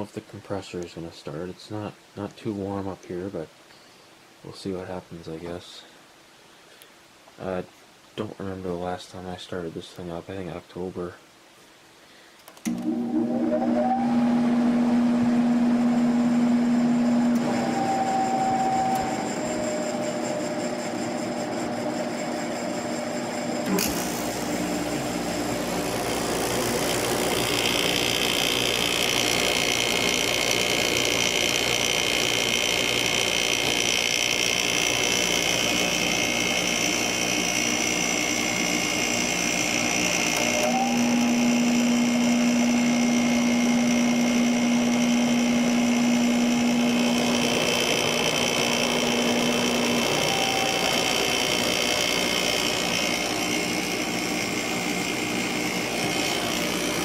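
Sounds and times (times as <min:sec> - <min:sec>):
window air conditioner running: 0:13.9 - 0:57.0.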